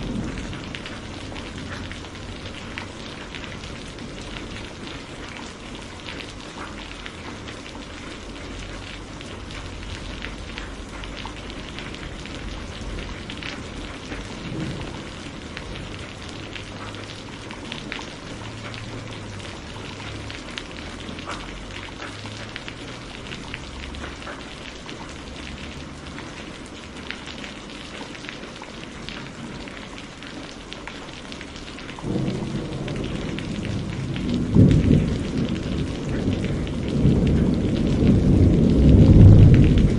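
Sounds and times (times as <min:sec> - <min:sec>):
thunder rumble: 0:00.0 - 0:06.1, 0:08.2 - 0:24.2, 0:32.0 - 0:39.9
raindrops clicking: 0:00.0 - 0:39.9
heavy rain hissing: 0:08.5 - 0:27.0, 0:31.4 - 0:39.9.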